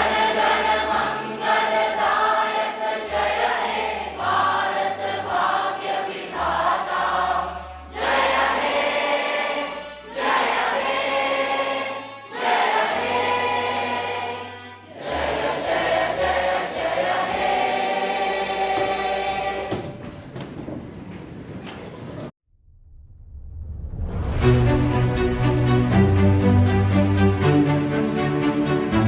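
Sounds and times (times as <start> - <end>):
choir singing: 0.0 - 20.1, 24.4 - 29.0
low bass notes: 22.8 - 28.3.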